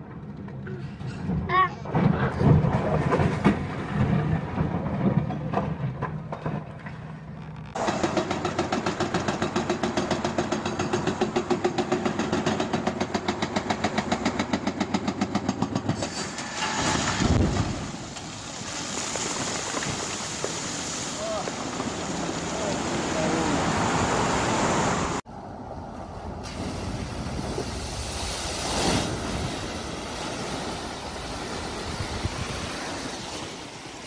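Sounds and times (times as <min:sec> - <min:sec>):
excavator engine: 0:00.0 - 0:18.6
hydraulic breaker hammering rock: 0:07.8 - 0:16.1
rock crashing down with rumble: 0:16.5 - 0:22.0
rubble clattering: 0:16.6 - 0:22.2.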